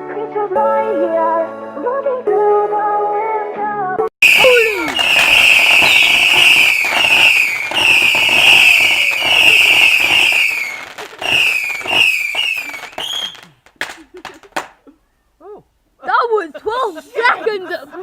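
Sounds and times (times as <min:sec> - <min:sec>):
whistling firework: 0:04.2 - 0:14.0
firework crackling: 0:04.2 - 0:14.8.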